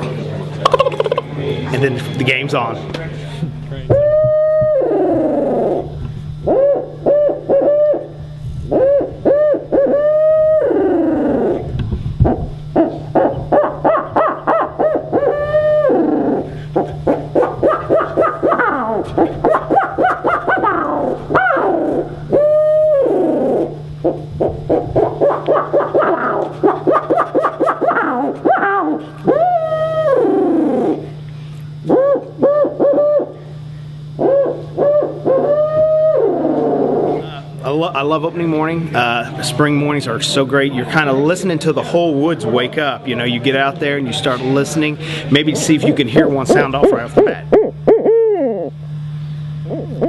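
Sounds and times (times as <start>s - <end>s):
person imitating owl hoots: 0.6s - 1.3s, 3.8s - 31.2s, 31.8s - 33.5s, 34.1s - 37.6s, 45.4s - 48.8s, 49.6s - 50.0s.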